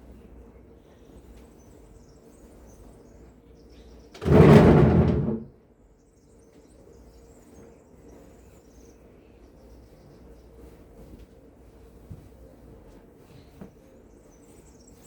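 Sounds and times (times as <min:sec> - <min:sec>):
loud household clatter: 0:04.2 - 0:05.5.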